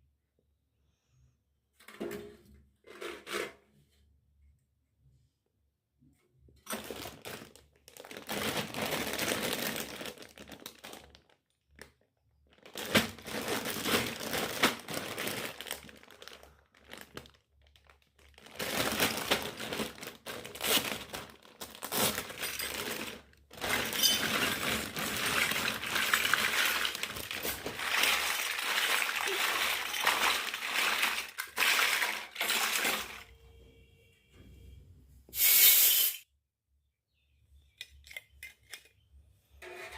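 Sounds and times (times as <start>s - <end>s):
packaging crinkling and rustling: 6.7s - 33.3s.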